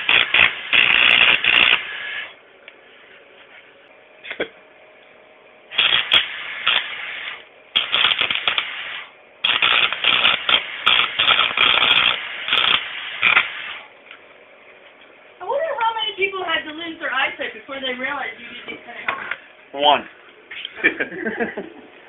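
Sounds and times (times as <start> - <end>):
arc welder crackling: 0.0 - 2.8, 5.7 - 18.3.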